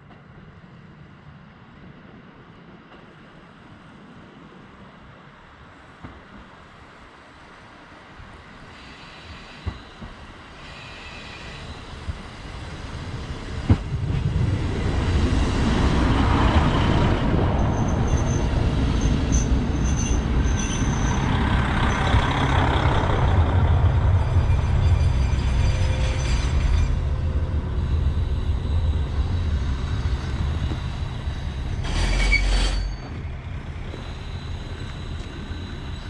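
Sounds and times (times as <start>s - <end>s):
railcar clicking over rails: 8.2s - 36.0s
brakes squealing: 16.6s - 36.0s
diesel engine low rumble: 19.5s - 25.6s.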